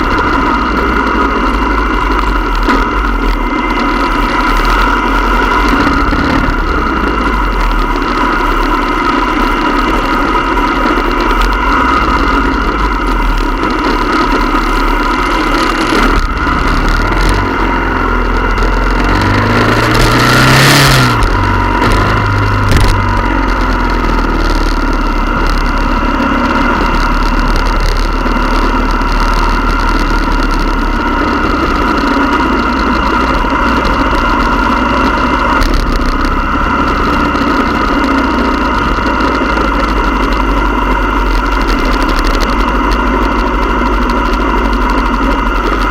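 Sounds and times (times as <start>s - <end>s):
engine revving: 0.0s - 45.9s
motorcycle engines running: 0.0s - 45.9s.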